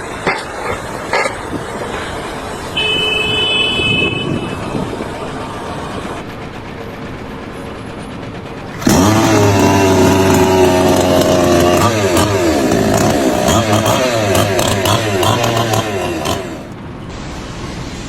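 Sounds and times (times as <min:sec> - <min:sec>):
loud engine: 0:00.0 - 0:18.0
machinery rumbling: 0:00.0 - 0:18.0
horn-like tone: 0:02.8 - 0:04.8.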